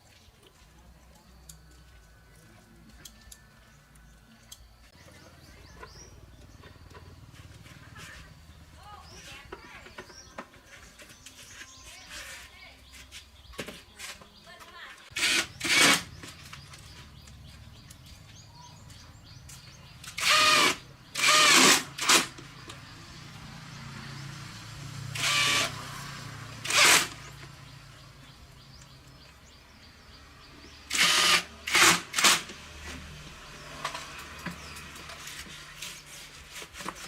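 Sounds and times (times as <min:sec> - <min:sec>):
power tool whining bursts: 0:15.1 - 0:16.3, 0:20.1 - 0:22.4, 0:25.1 - 0:27.4, 0:30.9 - 0:32.7.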